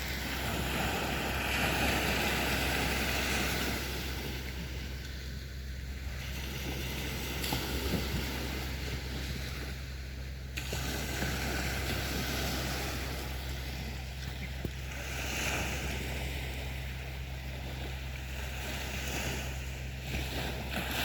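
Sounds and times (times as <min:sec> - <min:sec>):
sea waves washing onto beach: 0:00.0 - 0:21.0.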